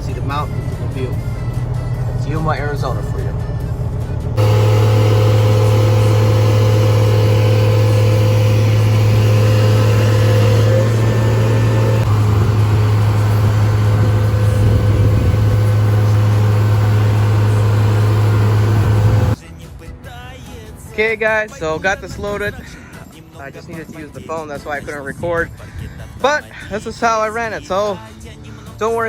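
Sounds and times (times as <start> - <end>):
diesel truck engine droning: 0.0 - 19.4
high held whine: 0.0 - 19.4.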